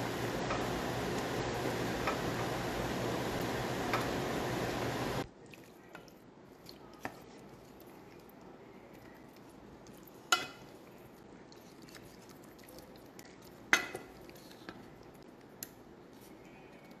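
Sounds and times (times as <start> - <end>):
spoon stirring thick sauce: 5.2 - 17.0.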